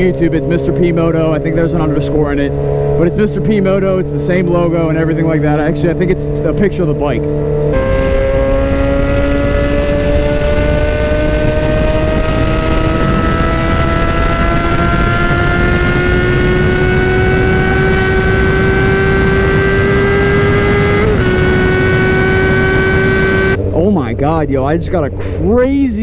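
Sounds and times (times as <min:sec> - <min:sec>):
motorcycle engine pulling: 0:06.2 - 0:24.1
wind rushing over camera: 0:07.4 - 0:23.8.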